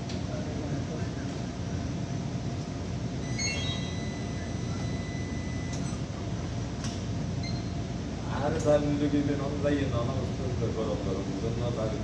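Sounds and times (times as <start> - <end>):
rising electronic beep tones: 3.2 - 5.7
thin high tone: 3.2 - 5.8.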